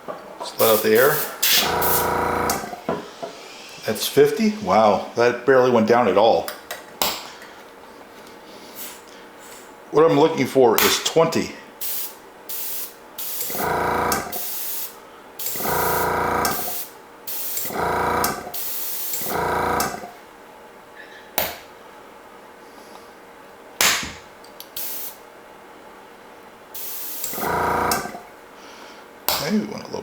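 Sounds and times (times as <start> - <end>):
compressed air hissing: 0.6 - 5.2, 11.8 - 19.4, 24.8 - 25.2, 26.8 - 28.2.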